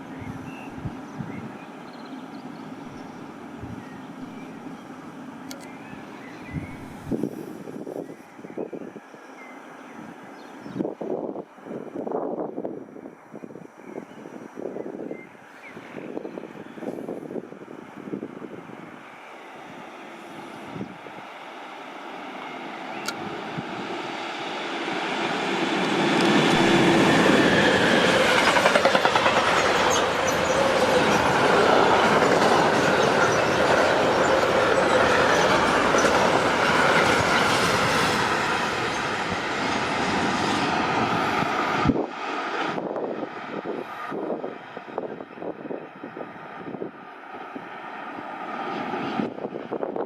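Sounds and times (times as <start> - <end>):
train passing: 14.3 - 50.0
train wheel clatter: 25.8 - 39.2.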